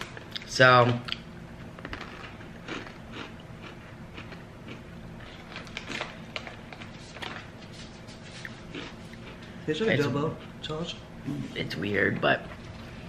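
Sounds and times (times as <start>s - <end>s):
corn nuts crunching when chewed: 1.8s - 7.5s, 8.3s - 9.4s.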